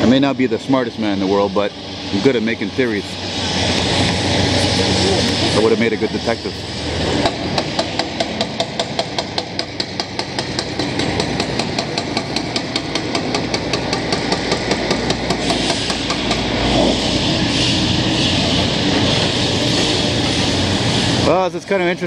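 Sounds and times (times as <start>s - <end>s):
diesel engine running: 0.0s - 22.0s
loud steady machine noise: 0.0s - 22.0s
mechanical hammering: 7.2s - 16.7s.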